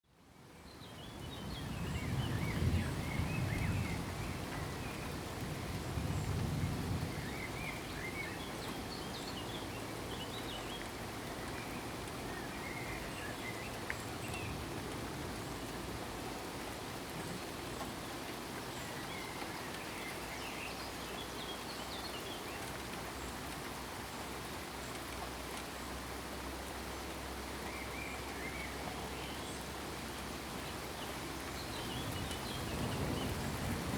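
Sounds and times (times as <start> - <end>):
steady rainfall: 0.1 - 33.9.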